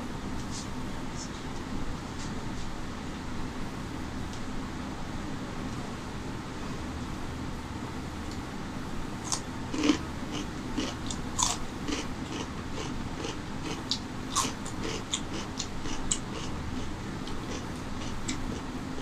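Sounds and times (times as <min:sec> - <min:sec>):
crunchy chewing of cucumber: 0:09.2 - 0:19.0.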